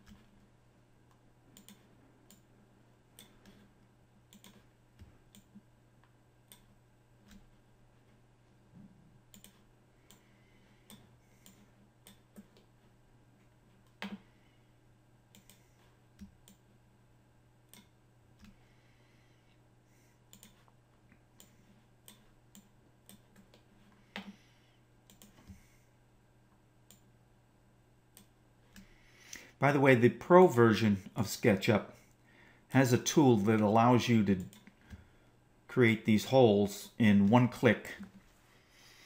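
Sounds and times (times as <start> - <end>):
low steady hum: 0.0 - 39.0
computer mouse clicks: 1.1 - 2.5, 3.1 - 3.7, 4.3 - 4.7, 5.3 - 7.5, 9.3 - 10.2, 10.8 - 12.7, 15.3 - 16.6, 17.7 - 18.6, 20.3 - 20.8, 21.4 - 24.4, 25.0 - 25.6, 26.8 - 27.1, 28.1 - 29.0.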